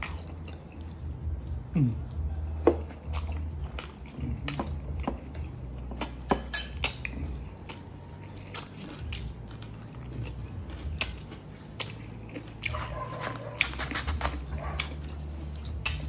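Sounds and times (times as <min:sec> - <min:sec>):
close chewing: 0:02.0 - 0:06.2, 0:06.8 - 0:16.0.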